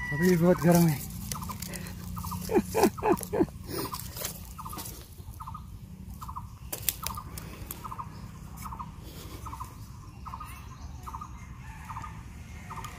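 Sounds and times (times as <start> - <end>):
bird calling: 0.0 - 12.9.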